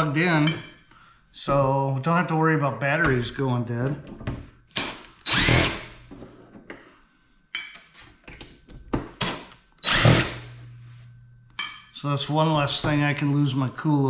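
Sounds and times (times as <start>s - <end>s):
electric drill spinning: 4.7s - 6.1s, 9.3s - 10.8s.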